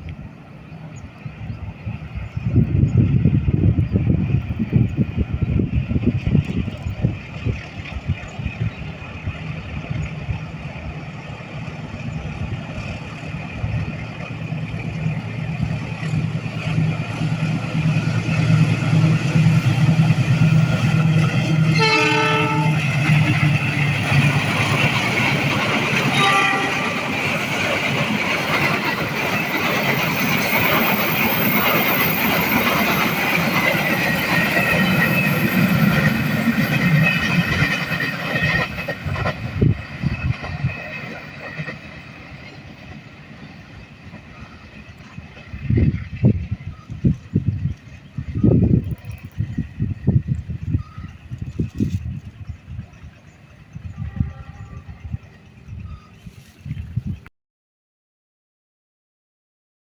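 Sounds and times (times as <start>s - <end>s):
diesel locomotive engine humming: 0.0s - 57.2s
train cars rolling by: 0.0s - 57.2s
train horn: 21.4s - 23.7s, 25.9s - 27.4s, 53.8s - 56.0s.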